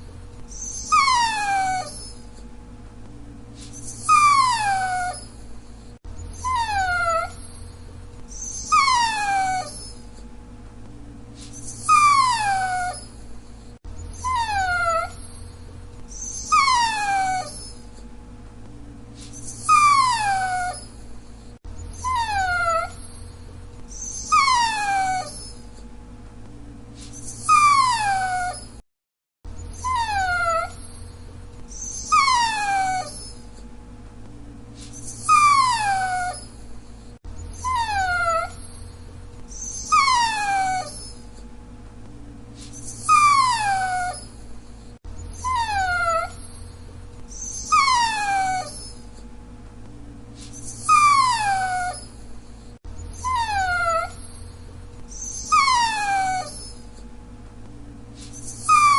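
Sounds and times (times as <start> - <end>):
dog whining: 0.0 - 2.5, 3.6 - 10.3, 11.4 - 18.1, 19.2 - 25.9, 27.0 - 28.8, 29.5 - 33.7, 34.8 - 41.5, 42.6 - 49.3, 50.4 - 57.1, 58.2 - 58.9.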